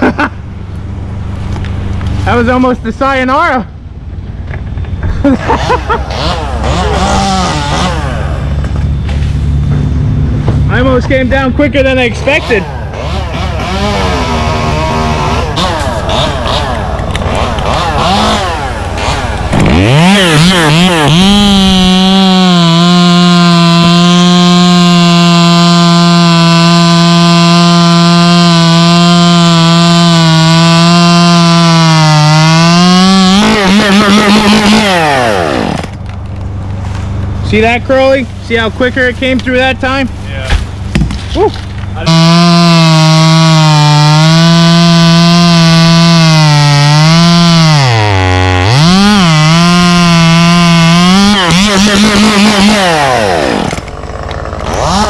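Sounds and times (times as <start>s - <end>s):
chainsaw revving and cutting: 5.3s - 9.1s, 12.0s - 36.0s, 41.5s - 55.0s.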